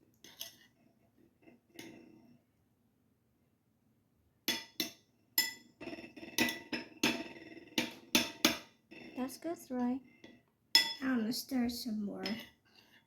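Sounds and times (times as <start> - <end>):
spoon clinking against bowl: 10.8 - 11.1.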